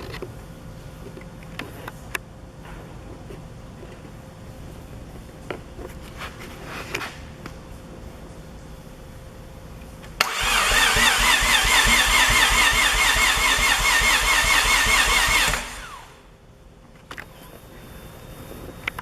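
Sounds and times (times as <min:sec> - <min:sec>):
starter motor whine: 0:10.2 - 0:16.3.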